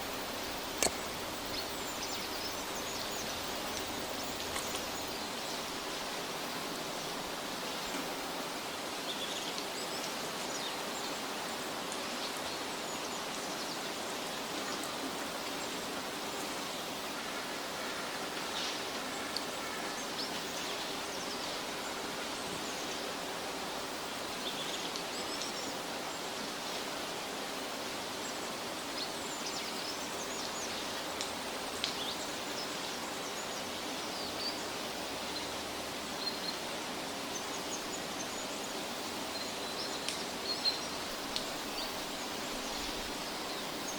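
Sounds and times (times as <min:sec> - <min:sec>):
outdoor hiss: 0:00.0 - 0:43.9
soft ticks: 0:00.1 - 0:05.1, 0:40.0 - 0:40.2.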